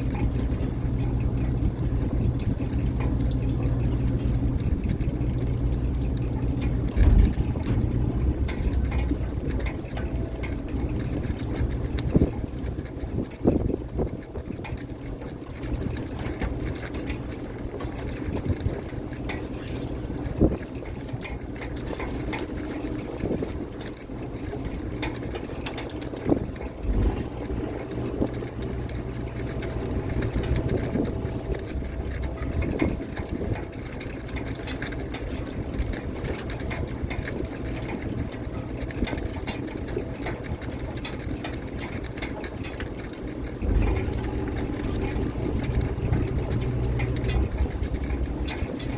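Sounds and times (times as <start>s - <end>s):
boat engine running: 0.0s - 48.9s
deck machinery running: 0.0s - 48.9s
knocks and clanks on deck: 6.7s - 10.1s.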